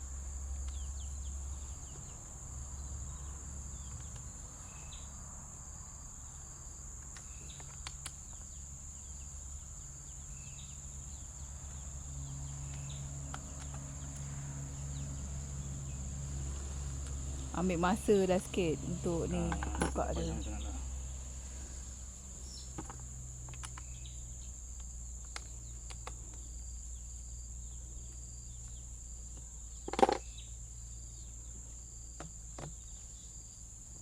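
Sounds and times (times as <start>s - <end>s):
high-pitched insect drone: 13.8s - 21.3s.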